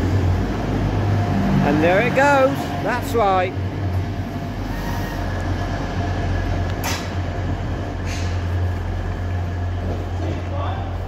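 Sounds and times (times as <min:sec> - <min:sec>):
train diesel engines droning: 0:00.0 - 0:11.0.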